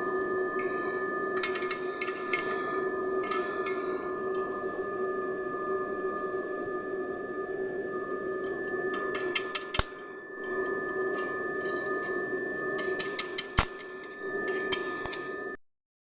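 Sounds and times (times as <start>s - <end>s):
laser cleaner high whine: 0.0s - 15.6s
crackles and snaps: 12.8s - 14.2s.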